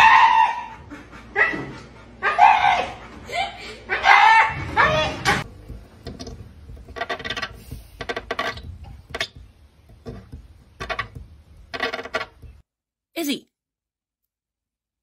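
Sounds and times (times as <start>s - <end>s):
dog's teeth squeaking on glass: 6.8s - 9.4s, 10.1s - 12.6s.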